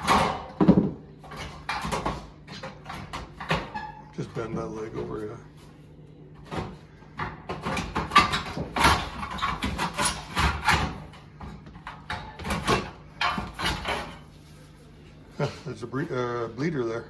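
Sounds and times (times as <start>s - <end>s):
knocks and scrapes on wooden framing: 6.4s - 15.6s.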